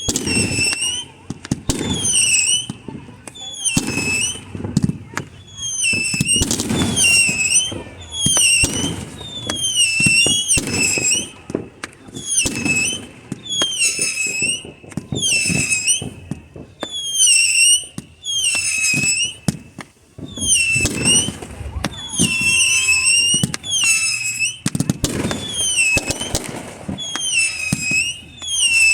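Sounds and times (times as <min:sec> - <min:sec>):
fireworks booming and crackling: 0:00.0 - 0:28.9
high whistle dipping and rising: 0:20.2 - 0:24.6.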